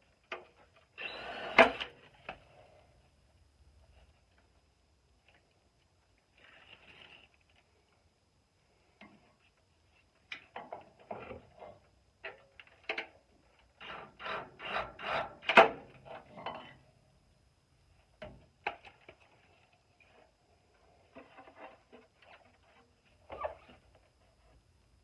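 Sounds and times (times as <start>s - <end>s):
metal scraping on metal: 13.8s - 16.8s.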